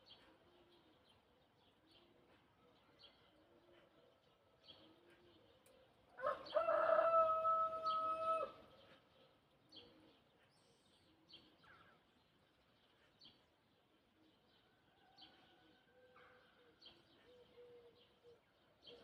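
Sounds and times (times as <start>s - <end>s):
small birds chirping: 0.0s - 6.7s, 7.7s - 19.0s
rooster crowing: 6.2s - 8.6s.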